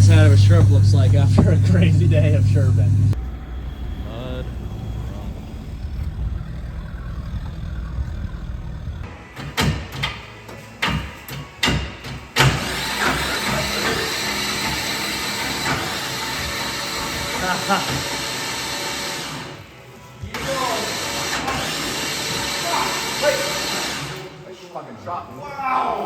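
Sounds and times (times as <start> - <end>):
vehicle engine rumbling: 0.0 - 9.3.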